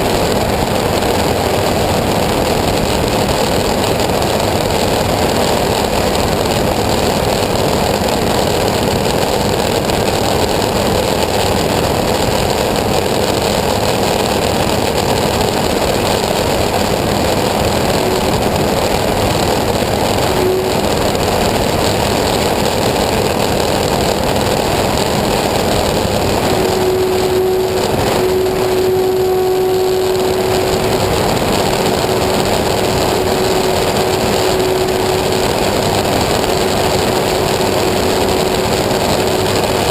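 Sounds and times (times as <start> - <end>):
engine running loudly: 0.0 - 39.9
steady hum: 0.0 - 39.9.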